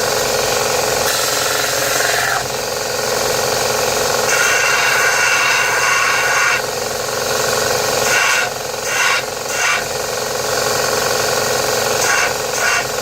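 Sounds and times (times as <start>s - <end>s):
electric grinder cutting steel: 1.0s - 2.6s, 4.1s - 10.0s, 11.8s - 13.0s.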